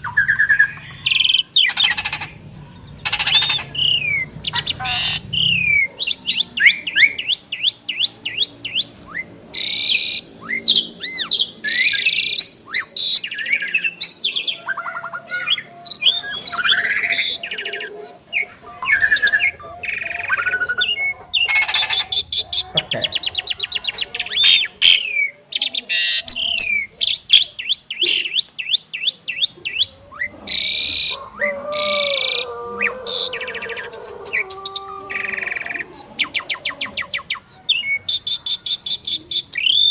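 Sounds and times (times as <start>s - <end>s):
starlings singing: 0.0s - 39.9s.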